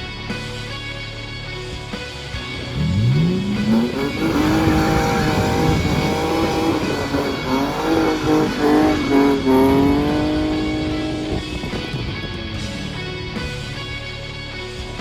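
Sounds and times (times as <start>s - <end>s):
car engine at high revs: 1.7s - 15.0s
tyres spinning in a burnout: 2.4s - 13.9s.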